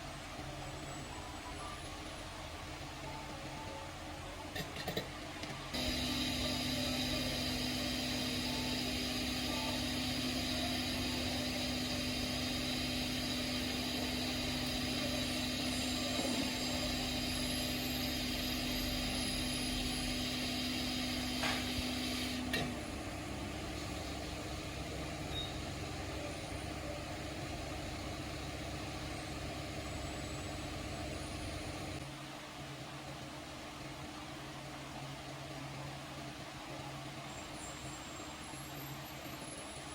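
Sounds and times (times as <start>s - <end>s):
small motor humming with whine: 5.7s - 32.2s.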